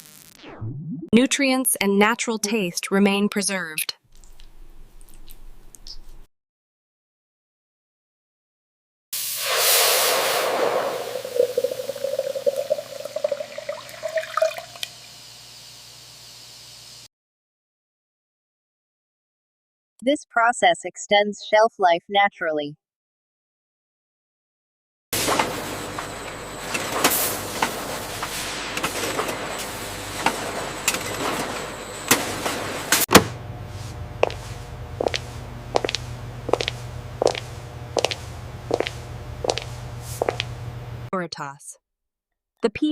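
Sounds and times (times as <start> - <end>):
liquid pouring into a container: 9.5 - 15.1
liquid dripping: 11.1 - 15.0
machinery clanks and knocks: 25.2 - 33.4
factory machinery whirring: 25.2 - 41.0.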